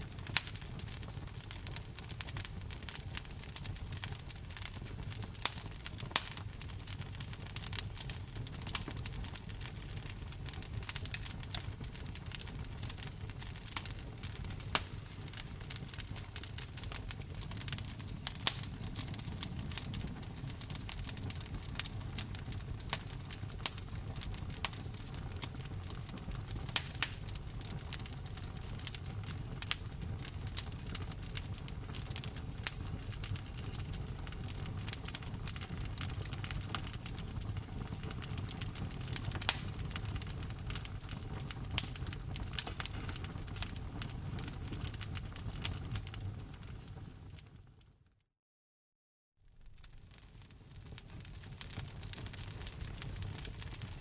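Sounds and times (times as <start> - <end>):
wood fire crackling: 0.0 - 47.9, 49.5 - 54.0.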